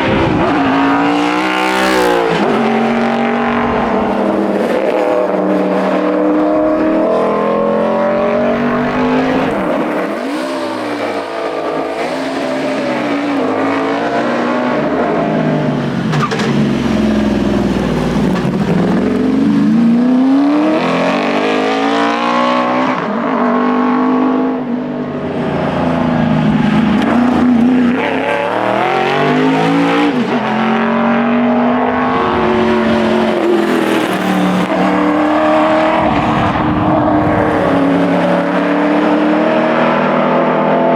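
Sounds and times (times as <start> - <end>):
car engine revving and shifting gears: 0.0 - 40.9.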